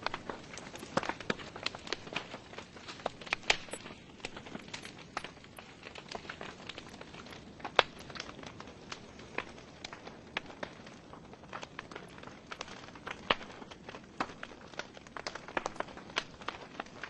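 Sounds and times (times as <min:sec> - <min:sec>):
logs crackling in fireplace: 0:00.0 - 0:17.0.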